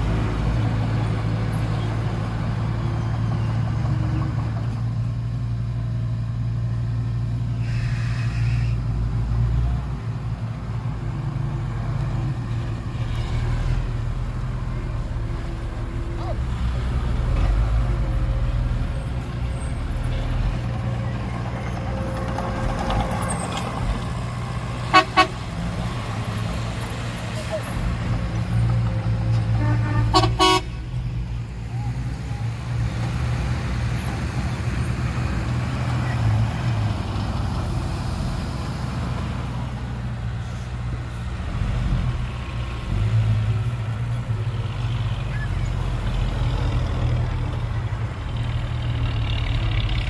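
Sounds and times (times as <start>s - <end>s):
diesel machinery engine running: 0.0s - 50.0s
horn toots: 7.6s - 8.8s, 24.9s - 25.5s, 29.4s - 31.0s.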